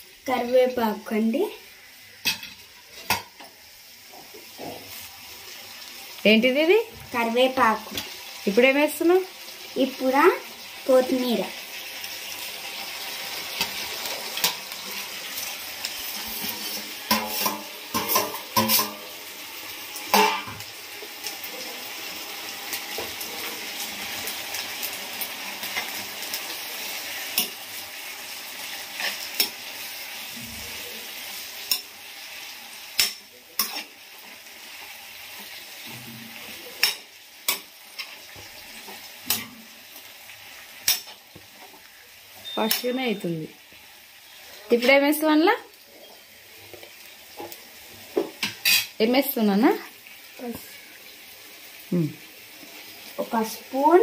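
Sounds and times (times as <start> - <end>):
vegetables sizzling in oil: 0.0 - 54.0
metal spoon scraping pan: 15.8 - 19.1.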